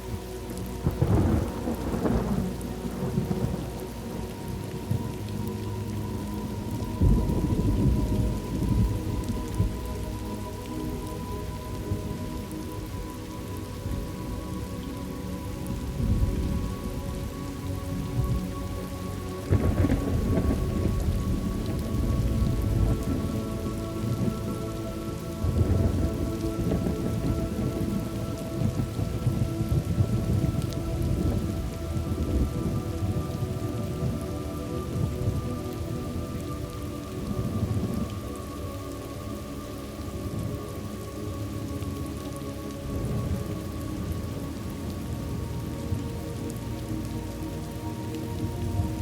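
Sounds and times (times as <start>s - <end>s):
steady rain: 0.0s - 49.0s
rolling thunder: 0.8s - 4.2s, 6.6s - 9.9s, 19.5s - 24.5s, 25.4s - 34.3s.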